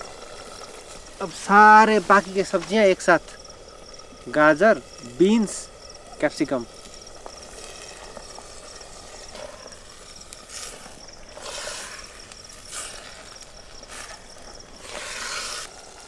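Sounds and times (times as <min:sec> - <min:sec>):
crickets chirping: 0:00.0 - 0:16.0
vegetables sizzling in hot oil: 0:00.0 - 0:16.0.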